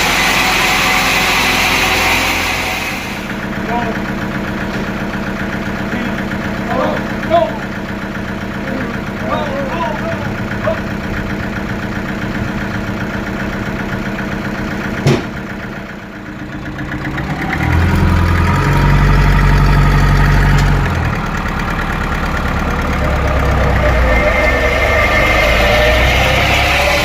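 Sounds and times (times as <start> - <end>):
sawmill machinery hum: 0.0 - 27.0
sharp knock: 15.0 - 15.4.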